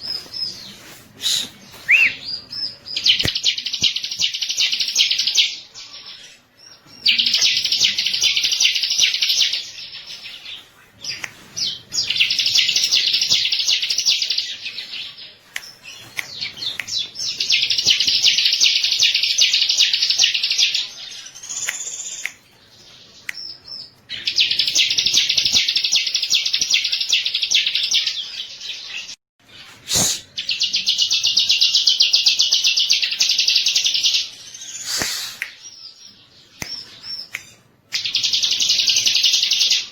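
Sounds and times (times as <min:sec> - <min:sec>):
bird high-pitched trilling: 0:01.8 - 0:02.3.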